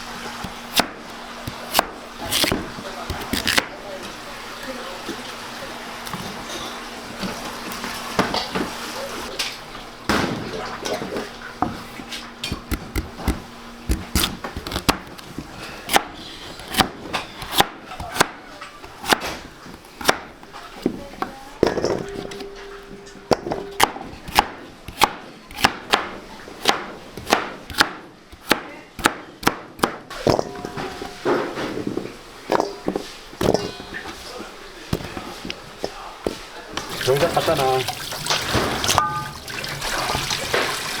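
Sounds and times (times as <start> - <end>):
knife chopping on wooden board: 12.5 - 15.1, 23.3 - 30.0.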